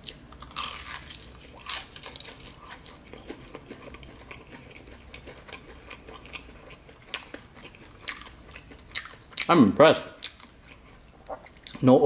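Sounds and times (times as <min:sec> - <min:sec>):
crunching and chewing crispy chicken: 0:00.0 - 0:09.6, 0:10.2 - 0:12.0.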